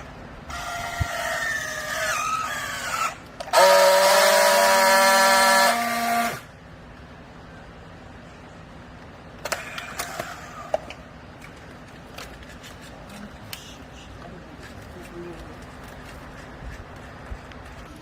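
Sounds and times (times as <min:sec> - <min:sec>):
hydraulic baler squeal: 0:00.5 - 0:06.4
loud horn-like tone: 0:03.5 - 0:06.5.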